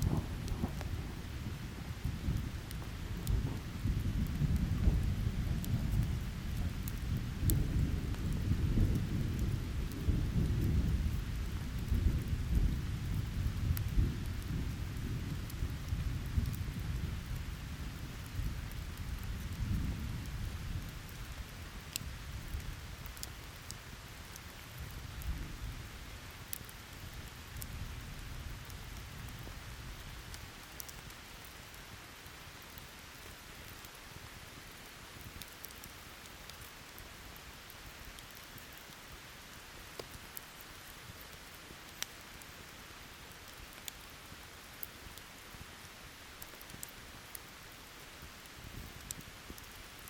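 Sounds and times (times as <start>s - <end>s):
distant thunder rumble: 0.0s - 11.0s
heavy rain hissing: 0.0s - 23.0s
campfire crackling: 0.0s - 50.0s
steady rain hiss: 0.0s - 50.0s.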